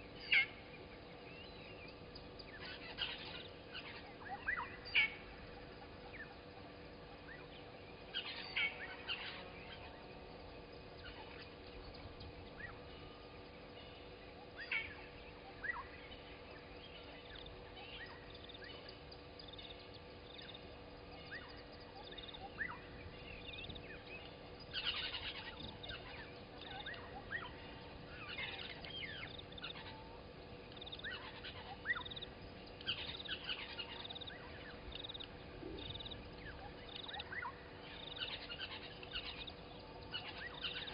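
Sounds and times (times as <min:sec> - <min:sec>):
faint steady hum: 0:00.0 - 0:40.9
wild birds chirping: 0:00.0 - 0:40.9.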